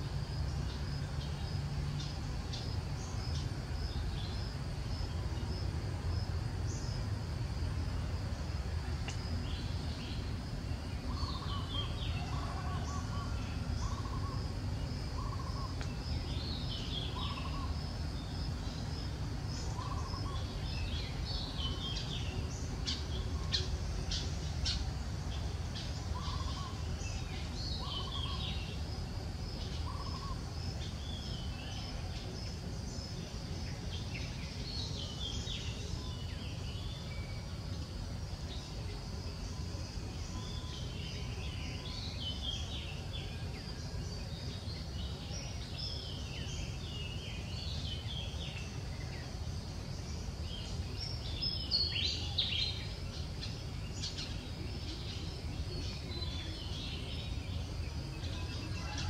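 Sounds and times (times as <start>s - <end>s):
birds chirping and calling: 11.0s - 14.4s, 15.1s - 17.8s, 19.5s - 28.8s, 29.6s - 31.9s.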